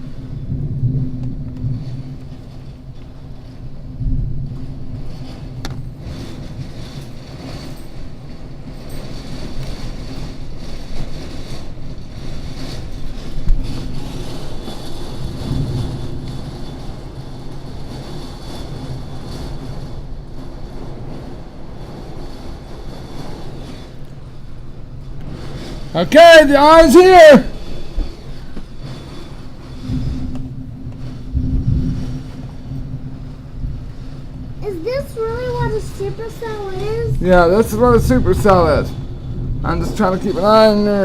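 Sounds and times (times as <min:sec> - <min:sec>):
heavy rain pouring: 0:00.0 - 0:41.0
wind gusting: 0:00.0 - 0:41.0.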